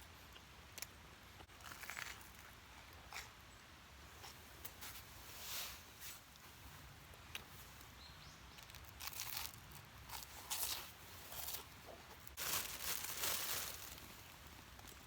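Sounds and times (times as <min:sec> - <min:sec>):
rustling and crinkling handling: 0:08.6 - 0:15.0.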